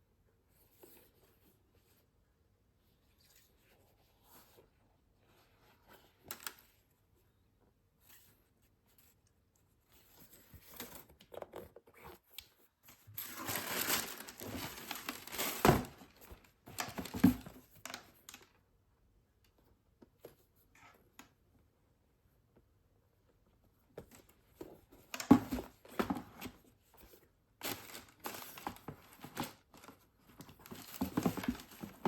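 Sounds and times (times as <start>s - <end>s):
packaging paper crinkling: 13.2s - 16.2s.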